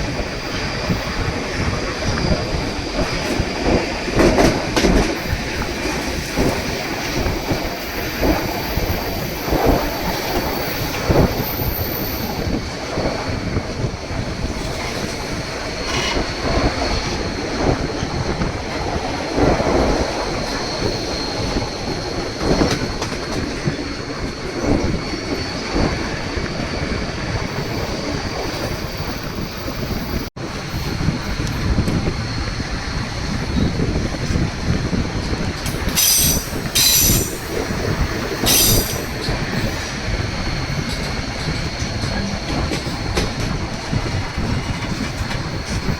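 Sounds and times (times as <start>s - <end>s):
train rumble: 0.0s - 45.9s
train wheels clacking over rail joints: 0.5s - 11.4s, 14.5s - 26.0s, 33.6s - 45.9s
thin wheel squeal: 35.9s - 37.6s, 38.4s - 39.1s.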